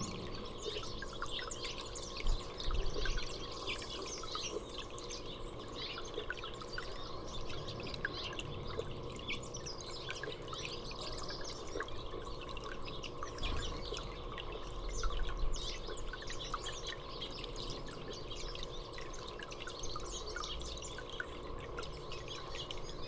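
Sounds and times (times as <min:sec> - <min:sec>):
low rumble: 0:00.0 - 0:01.3
small songbirds chirping: 0:00.0 - 0:23.0.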